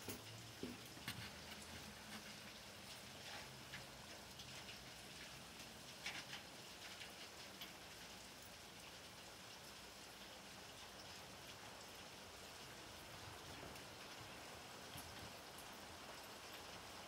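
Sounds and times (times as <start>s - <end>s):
raindrops tapping: 0.0s - 8.2s
rain hiss: 0.0s - 17.0s.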